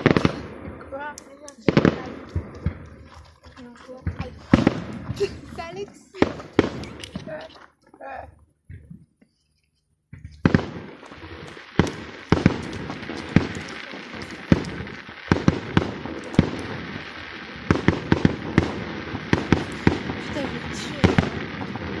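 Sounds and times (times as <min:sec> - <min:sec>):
firework shells bursting: 0:00.0 - 0:07.7, 0:10.1 - 0:22.0
fireworks crackling: 0:00.0 - 0:08.3, 0:10.1 - 0:22.0.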